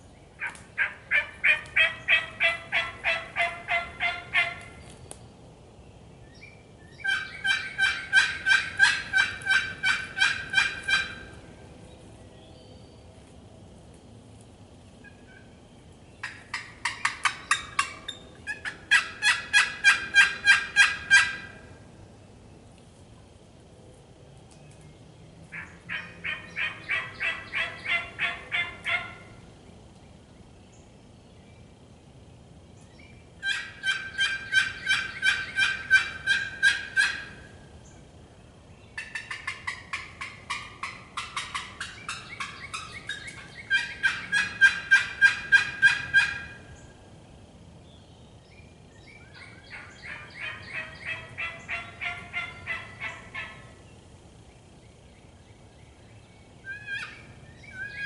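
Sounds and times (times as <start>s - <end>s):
turkey yelping: 0.4s - 4.7s, 7.0s - 11.3s, 16.2s - 21.6s, 25.5s - 29.3s, 33.4s - 37.4s, 39.0s - 46.7s, 49.3s - 53.8s, 56.7s - 58.0s.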